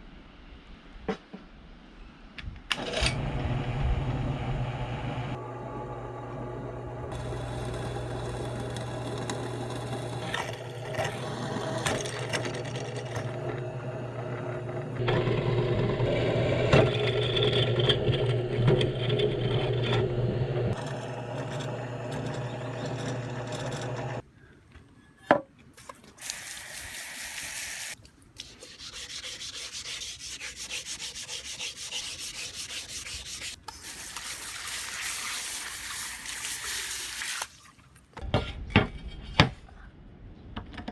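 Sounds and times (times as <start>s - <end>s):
power tool motor hum with rasping: 5.7s - 16.6s, 19.0s - 24.2s
high-pitched grinding on steel: 7.1s - 13.5s, 20.7s - 24.2s, 27.8s - 35.4s.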